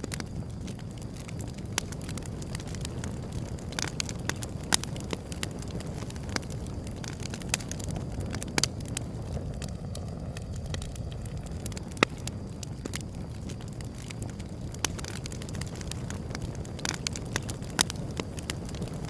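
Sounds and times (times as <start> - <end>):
fire low rumble: 0.0 - 19.0
wood fire crackling and popping: 0.0 - 19.0.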